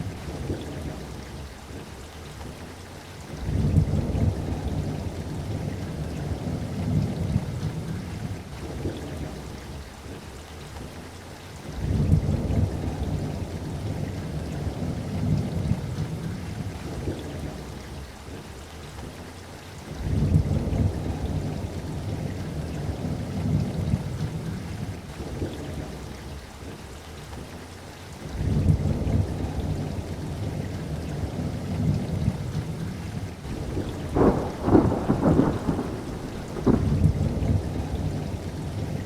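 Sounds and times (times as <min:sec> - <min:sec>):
steady rain: 0:00.0 - 0:39.0
rolling thunder: 0:28.4 - 0:39.0.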